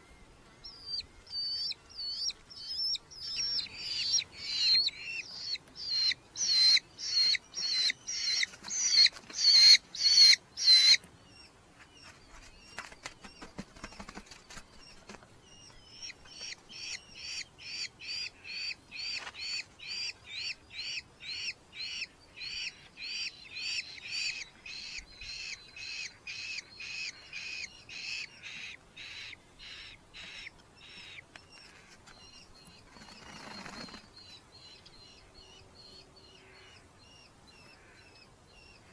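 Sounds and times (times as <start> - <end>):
falcons calling shrilly: 1.4 - 11.0.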